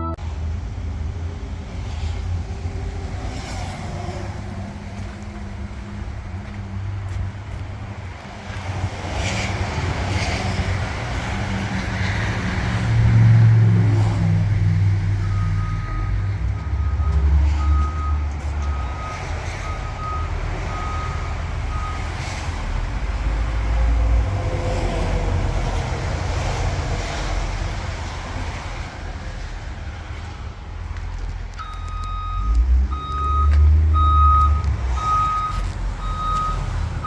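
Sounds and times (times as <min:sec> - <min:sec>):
diesel truck engine running: 0:12.2 - 0:37.0
reversing alarm beeping: 0:15.2 - 0:22.2, 0:31.6 - 0:36.8.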